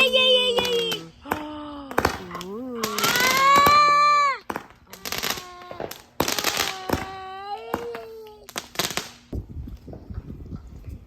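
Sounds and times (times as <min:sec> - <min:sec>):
fireworks bangs and pops: 0:00.0 - 0:10.3
small child crying: 0:02.9 - 0:08.6.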